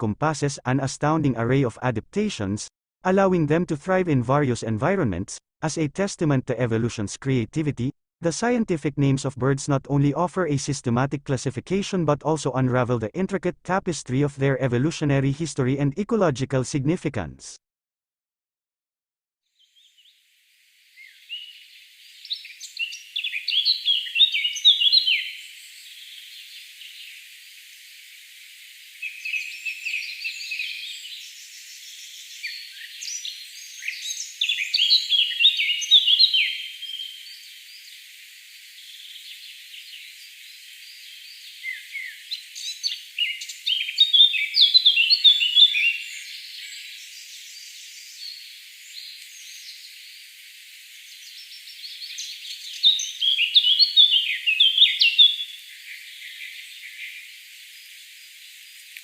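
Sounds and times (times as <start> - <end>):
birds chirping and twittering: 19.6 - 20.2, 20.8 - 59.0.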